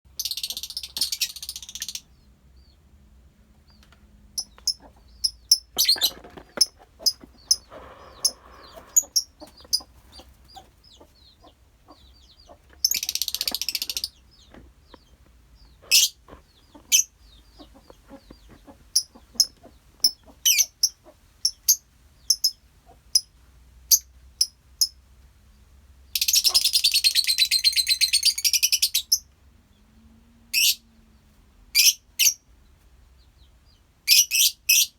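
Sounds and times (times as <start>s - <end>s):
lovebirds chattering: 0.1s - 2.9s, 3.6s - 25.0s, 26.1s - 29.8s
lovebirds chirping: 0.1s - 25.0s, 26.0s - 34.9s.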